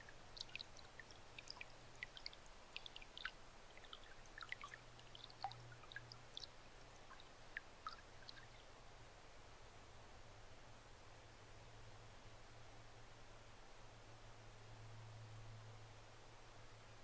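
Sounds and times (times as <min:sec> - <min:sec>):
soft ticks and crackles: 0:00.0 - 0:08.9
low steady hum: 0:00.0 - 0:17.0.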